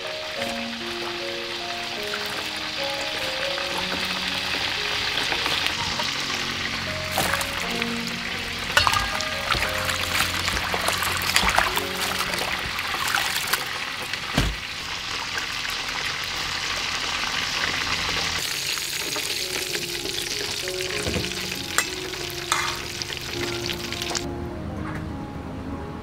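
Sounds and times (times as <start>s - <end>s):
food sizzling in a pan: 0.0s - 24.3s
stirring: 1.9s - 13.8s, 19.0s - 23.4s
utensil knocking: 8.8s - 13.4s.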